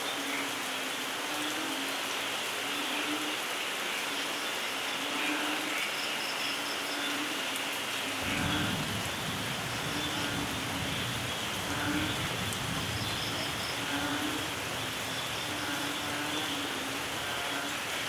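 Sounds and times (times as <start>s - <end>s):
heavy rainfall: 0.0s - 18.0s
frogs calling: 2.5s - 18.0s
low rumble of thunder: 8.2s - 16.4s.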